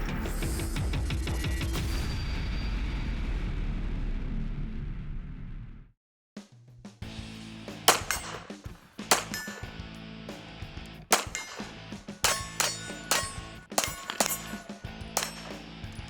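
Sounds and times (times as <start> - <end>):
steel targets clanging: 7.9 - 9.9, 11.1 - 16.0.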